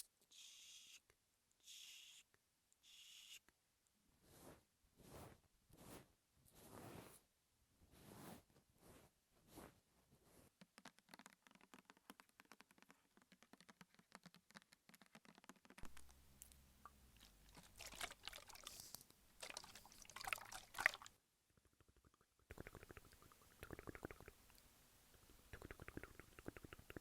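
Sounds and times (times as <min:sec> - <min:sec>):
fast crackly clicks: 0:10.6 - 0:16.2
liquid rustling and squishing: 0:16.8 - 0:27.0.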